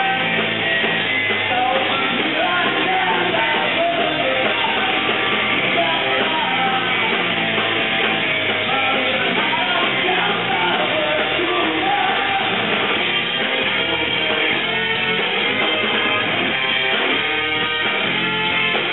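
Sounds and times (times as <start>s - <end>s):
person singing: 0.0s - 0.6s, 1.4s - 7.2s, 8.6s - 12.7s
live rock band playing: 0.0s - 18.9s.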